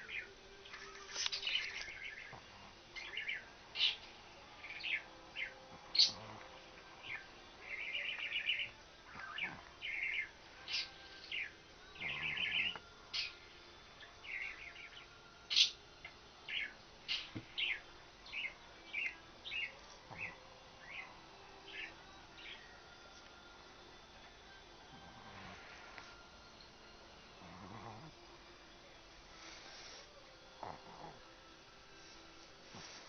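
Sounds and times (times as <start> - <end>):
small birds chirping: 0.0 - 6.4, 7.0 - 22.8.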